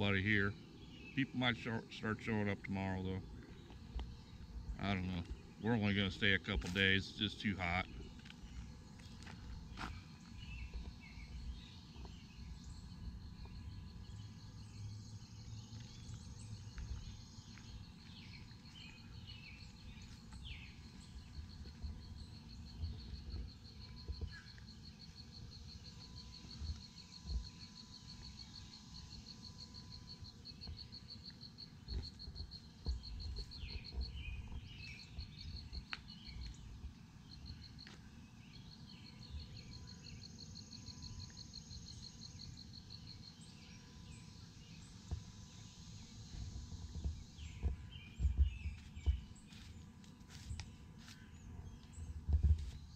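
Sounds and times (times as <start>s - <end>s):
insects trilling: 0.0s - 52.9s.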